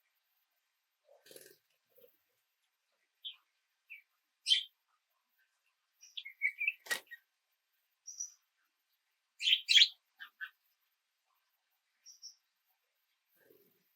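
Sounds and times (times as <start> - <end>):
songbirds chirping: 0.0 - 13.9.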